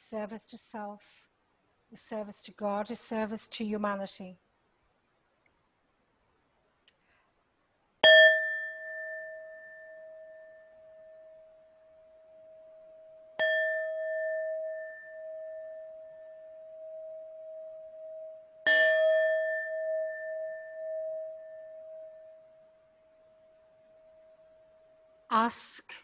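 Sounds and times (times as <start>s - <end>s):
singing bowl strike ringing: 8.0s - 25.0s
sustained bowl tone: 8.0s - 25.5s.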